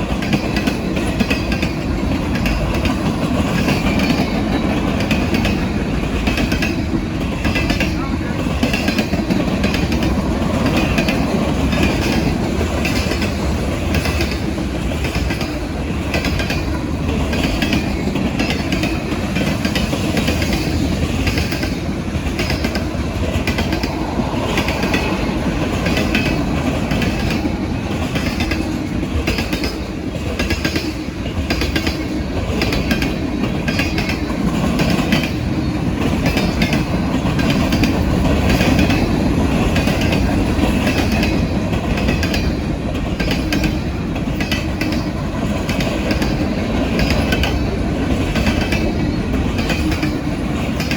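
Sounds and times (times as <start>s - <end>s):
freight cars rumbling: 0.0s - 50.9s
wheels clicking over rail joints: 0.0s - 50.9s.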